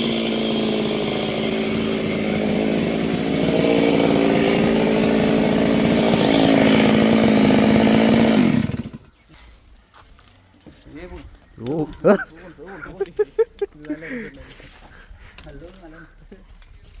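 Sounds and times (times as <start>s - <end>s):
chainsaw cutting wood: 0.0s - 9.1s.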